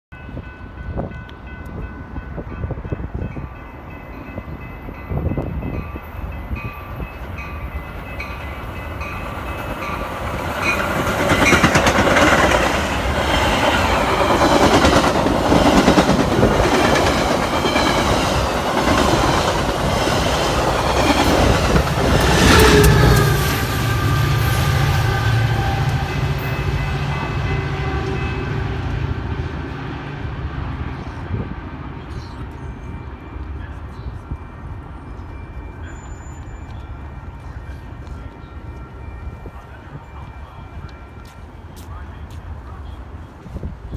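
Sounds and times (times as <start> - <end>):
train wheels clattering past: 7.4 - 29.2
train horn: 21.7 - 29.6.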